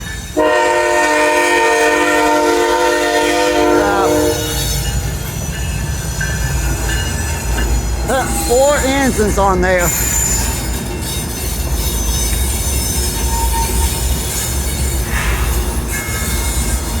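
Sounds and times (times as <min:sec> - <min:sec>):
train rumbling: 0:00.0 - 0:17.0
locomotive air horn: 0:00.4 - 0:04.7.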